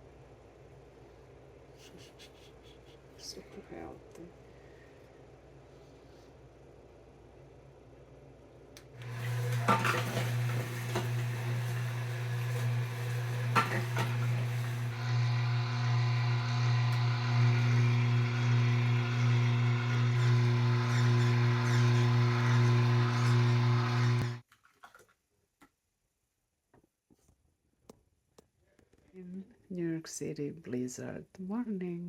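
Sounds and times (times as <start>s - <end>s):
juicer motor humming: 8.8s - 24.4s
fruit crunching in juicer: 8.8s - 25.1s.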